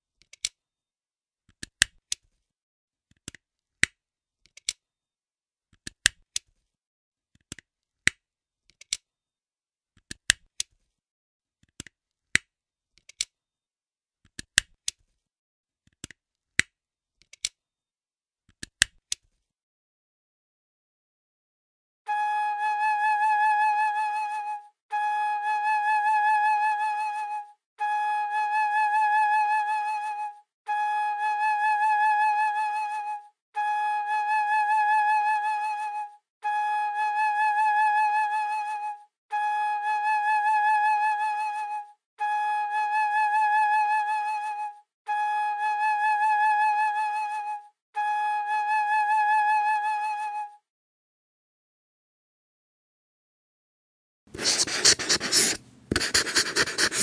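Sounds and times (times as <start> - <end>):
flute-like high tone: 22.1 - 50.6.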